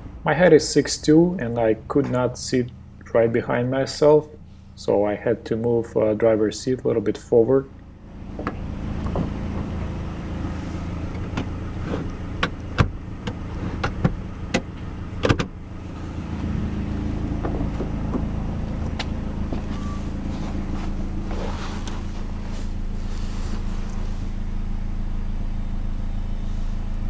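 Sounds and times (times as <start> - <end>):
car engine idling: 0.0 - 27.0
clicks and knocks in car interior: 8.3 - 22.5.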